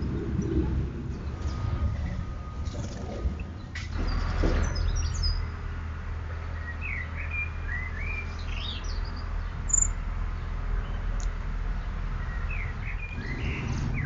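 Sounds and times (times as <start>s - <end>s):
low background rumble: 0.0s - 5.7s
songbirds chirping and warbling: 0.0s - 14.0s.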